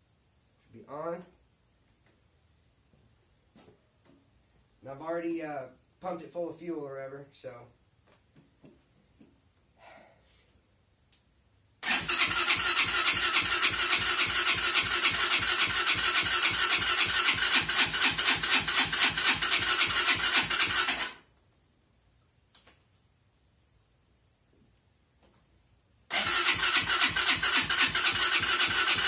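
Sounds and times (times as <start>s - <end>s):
engine cranking by electric starter: 11.8s - 21.2s, 26.1s - 29.0s.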